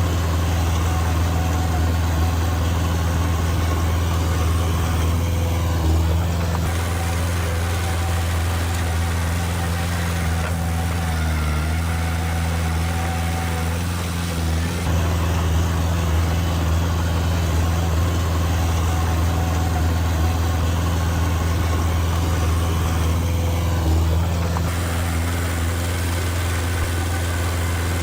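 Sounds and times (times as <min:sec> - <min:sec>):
heavy machine diesel engine running: 0:00.0 - 0:28.0.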